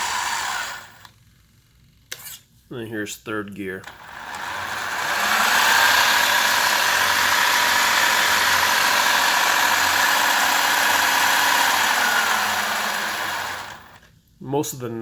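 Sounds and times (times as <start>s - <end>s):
motor and gears whining: 0.0s - 1.1s, 3.8s - 14.0s.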